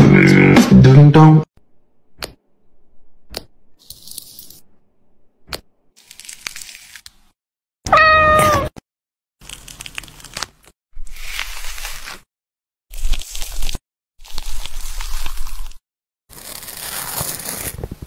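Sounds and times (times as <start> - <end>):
crunchy food preparation noise: 5.9 - 7.4, 9.4 - 12.3, 12.9 - 18.0
cat meowing: 7.9 - 8.8.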